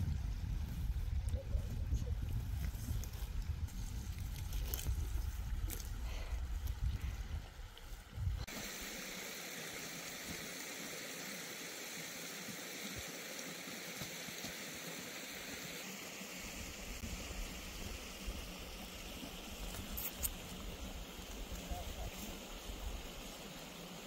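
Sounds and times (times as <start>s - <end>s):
water rushing in a stream: 7.6s - 24.0s.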